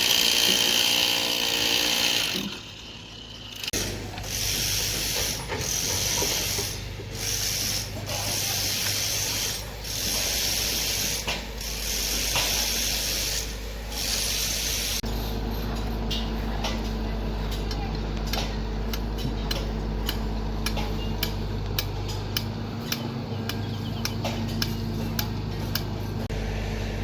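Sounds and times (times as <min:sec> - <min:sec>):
machinery low hum: 0:02.7 - 0:27.0
loud hiss: 0:03.8 - 0:15.0.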